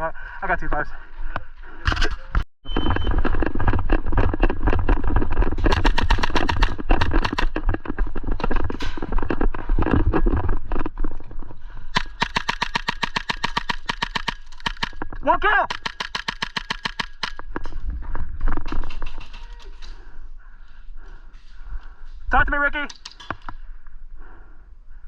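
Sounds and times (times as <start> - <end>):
airsoft gun shots: 12.0 - 15.0, 15.7 - 17.4.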